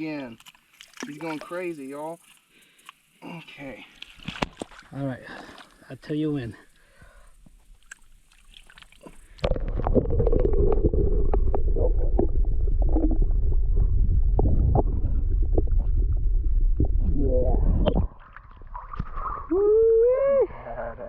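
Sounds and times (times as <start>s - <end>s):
underwater clicks: 6.7s - 13.2s
underwater rumble and gurgling: 9.0s - 21.0s.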